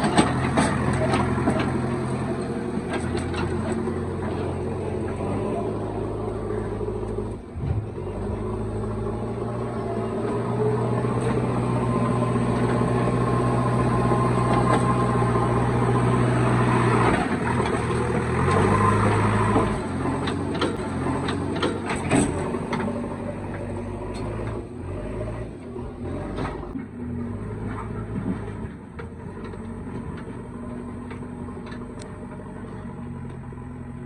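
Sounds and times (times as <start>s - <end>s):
heavy diesel engine running: 0.0s - 34.0s.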